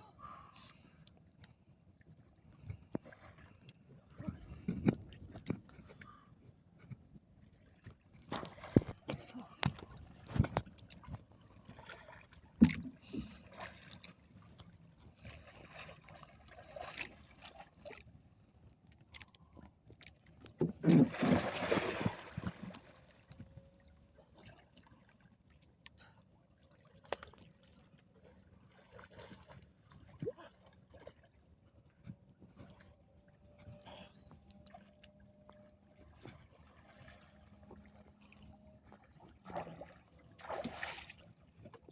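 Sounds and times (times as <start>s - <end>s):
water splashing: 20.8s - 23.3s, 39.0s - 41.2s.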